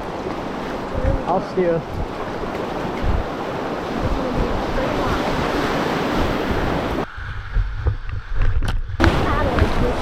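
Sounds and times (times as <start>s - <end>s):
wind buffeting microphone: 0.0s - 10.0s
river rapids rushing: 9.0s - 10.0s.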